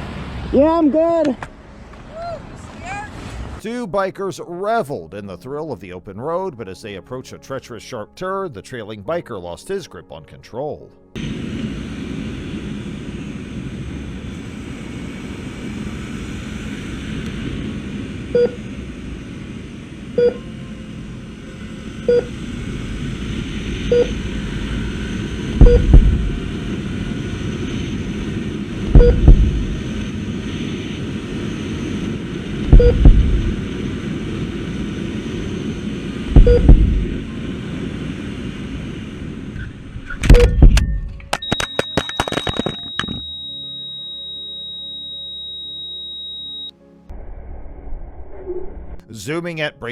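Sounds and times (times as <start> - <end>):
wind and road rumble: 0.0 - 3.6, 11.2 - 41.5
short beeps: 18.4 - 18.6, 20.2 - 20.5, 22.1 - 22.3, 23.9 - 24.2, 25.6 - 26.0, 29.0 - 29.3, 32.8 - 33.1, 36.4 - 36.8, 40.3 - 46.7
heavy low thumps: 22.6 - 26.8, 28.1 - 30.0, 32.5 - 33.8, 36.2 - 37.3, 40.2 - 41.2.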